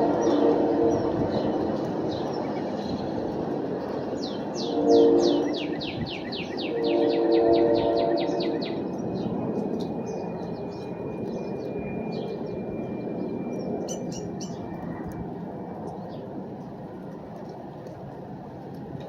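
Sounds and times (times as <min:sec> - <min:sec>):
birds chirping: 0:00.0 - 0:15.2.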